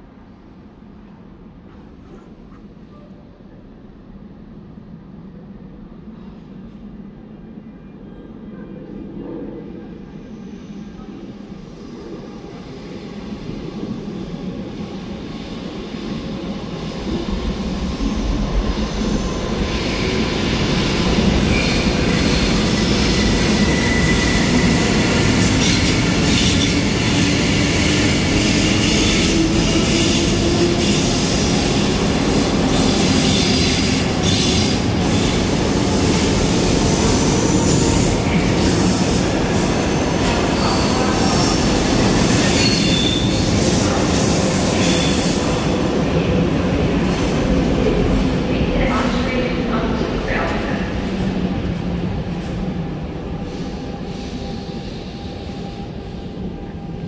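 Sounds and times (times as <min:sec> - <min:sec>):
electric train rumble: 0:08.8 - 0:57.0
high wheel squeal: 0:42.4 - 0:43.5.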